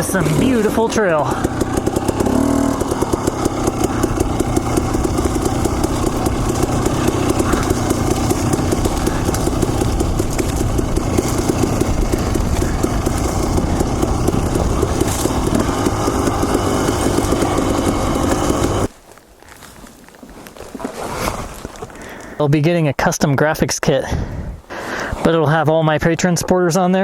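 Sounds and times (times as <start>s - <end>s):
dirt bike engine running: 0.0s - 18.9s.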